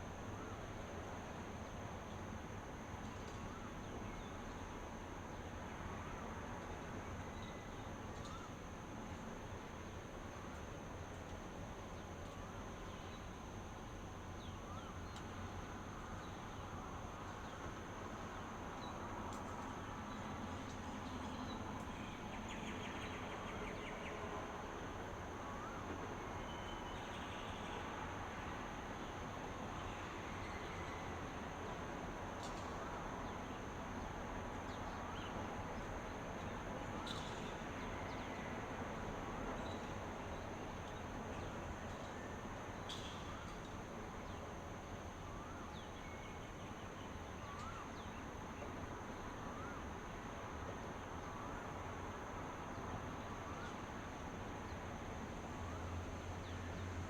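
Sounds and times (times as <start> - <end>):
insect chorus: 0.0 - 57.0
outdoor ambient hiss: 0.0 - 57.0
faint bird chirps: 25.5 - 28.0, 45.4 - 49.8.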